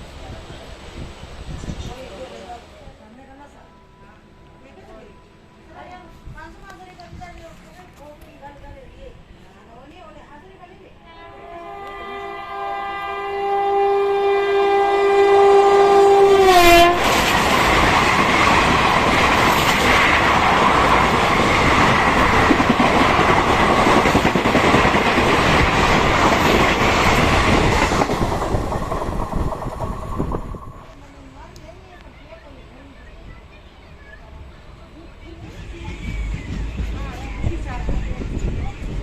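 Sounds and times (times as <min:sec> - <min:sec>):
train horn: 0:11.0 - 0:17.2
train coaches clattering past: 0:11.7 - 0:31.4.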